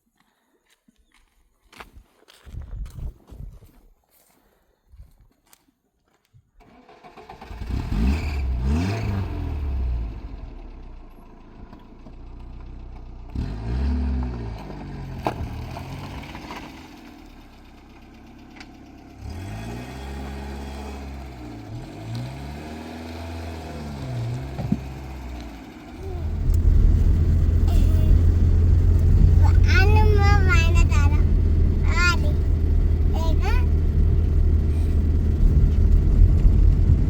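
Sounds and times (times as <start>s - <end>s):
vehicle engine revving: 7.1s - 11.5s, 12.3s - 17.4s, 19.1s - 37.0s
clatter: 10.4s - 20.4s, 24.2s - 37.0s.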